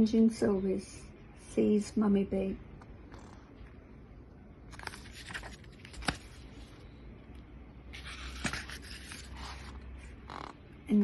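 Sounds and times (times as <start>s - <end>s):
book pages rustling: 4.7s - 6.9s, 7.9s - 10.6s.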